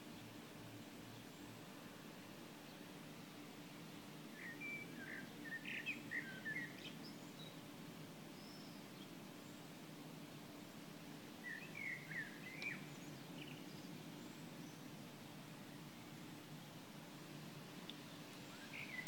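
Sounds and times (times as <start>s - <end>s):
small birds twittering: 3.9s - 7.6s, 8.4s - 9.8s, 11.4s - 14.9s, 17.9s - 19.0s.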